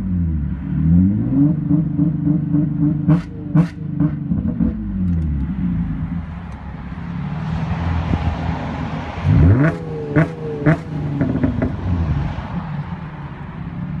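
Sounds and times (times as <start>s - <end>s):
engine revving against rev limit: 0.0s - 6.4s, 7.0s - 12.3s
car engine idling: 1.8s - 7.4s.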